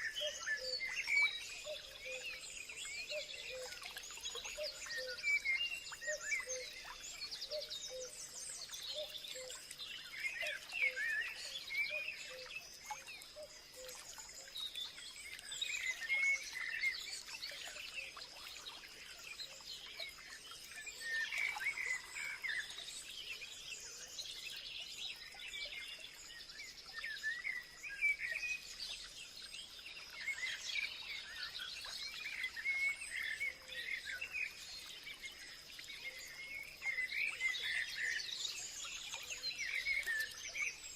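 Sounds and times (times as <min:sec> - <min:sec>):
birds chirping and warbling: 0:00.0 - 0:40.9.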